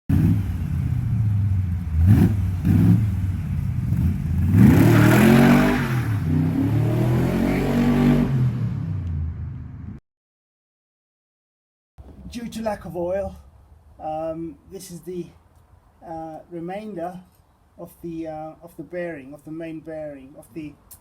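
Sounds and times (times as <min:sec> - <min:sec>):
car engine idling and revving: 0:00.1 - 0:10.0.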